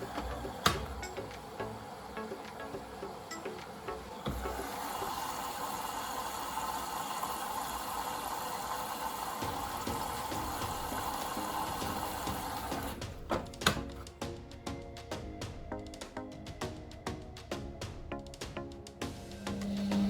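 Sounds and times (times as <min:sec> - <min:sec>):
water running: 0:00.0 - 0:14.3, 0:19.0 - 0:20.0.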